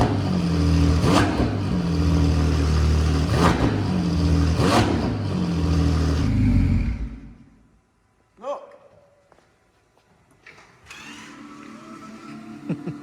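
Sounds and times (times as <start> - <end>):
loud car engine idling: 0.0 - 7.3.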